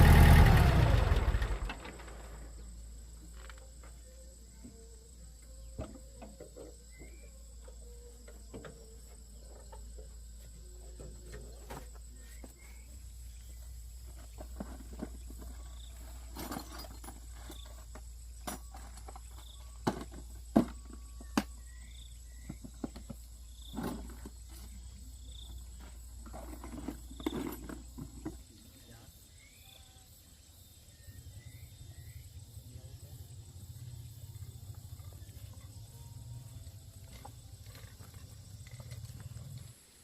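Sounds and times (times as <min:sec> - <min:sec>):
high insect-like whine: 0:11.7 - 0:40.0.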